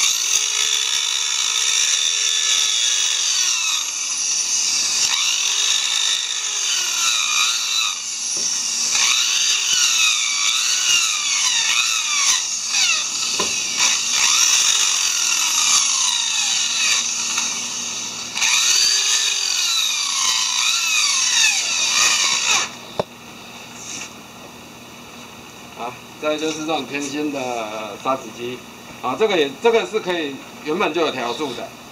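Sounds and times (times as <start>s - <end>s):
power sander on wood: 0.0s - 23.0s.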